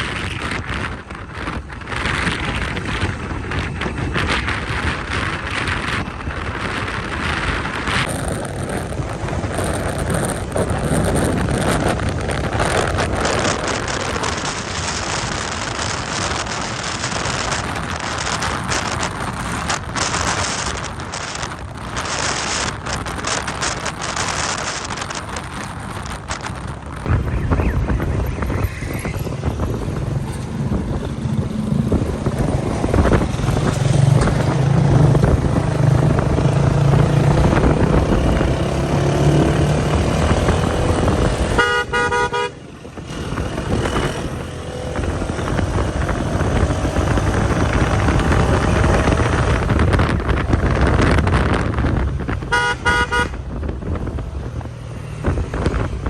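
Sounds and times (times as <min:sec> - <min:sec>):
wind rush: 0:00.0 - 0:56.0
horn honking: 0:41.4 - 0:42.7, 0:52.4 - 0:53.5.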